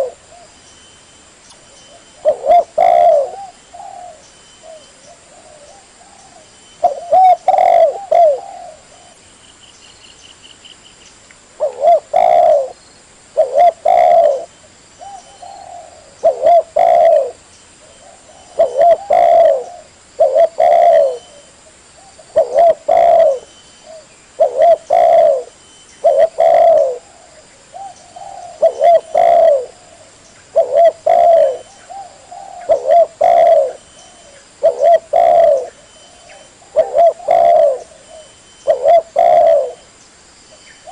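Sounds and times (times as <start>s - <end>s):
dove cooing: 0.0s - 0.5s, 1.9s - 9.2s, 11.6s - 12.8s, 13.4s - 39.9s.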